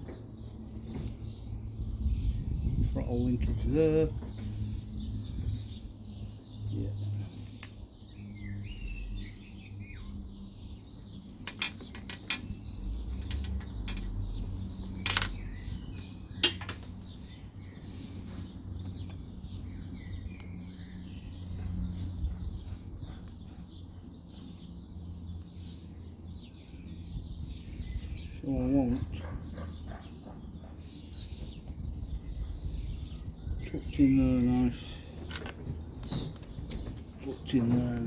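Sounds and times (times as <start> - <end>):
small birds chirping: 0.0 - 38.0
tools and small parts clinking: 11.4 - 15.6, 16.4 - 17.4, 35.2 - 35.7.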